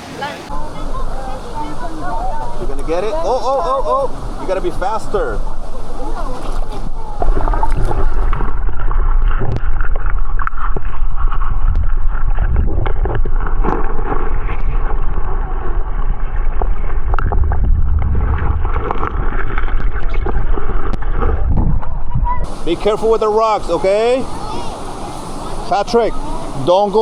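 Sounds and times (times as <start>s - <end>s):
rushing sloshing water: 0.0s - 27.0s
sharp knocks and splashes: 4.0s - 23.0s.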